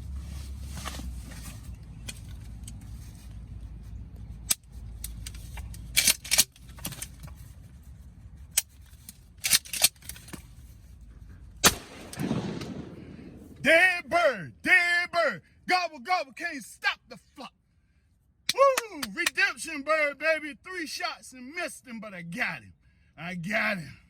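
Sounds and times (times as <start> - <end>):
metallic clatter of gun action: 4.4 - 7.5, 8.5 - 10.7
shot echo: 11.6 - 13.6
shotgun firing: 11.6 - 13.6.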